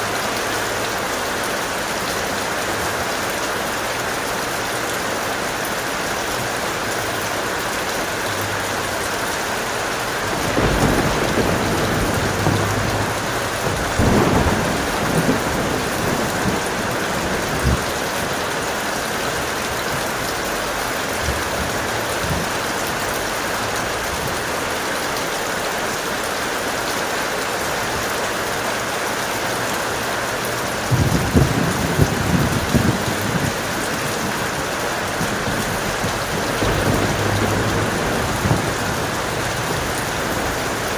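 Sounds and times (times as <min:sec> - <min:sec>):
heavy rain: 0:00.0 - 0:40.9
thunder rumbling and crackling: 0:10.0 - 0:20.4, 0:21.1 - 0:22.7, 0:30.7 - 0:40.9.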